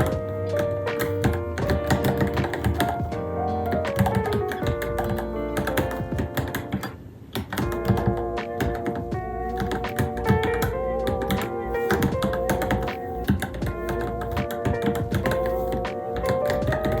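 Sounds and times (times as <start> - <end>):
background music: 0.0 - 17.0
mechanical keyboard typing: 0.0 - 17.0.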